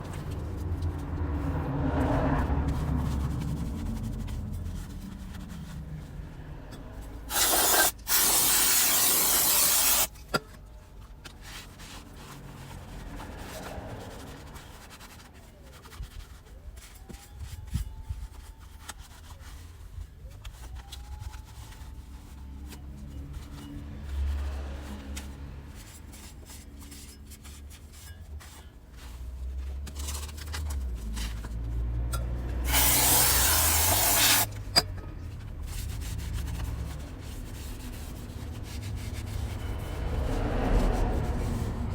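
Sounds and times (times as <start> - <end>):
rubbing and scraping on metal parts: 0.0 - 41.9
loud hissing bursts: 7.3 - 10.1, 32.7 - 34.5.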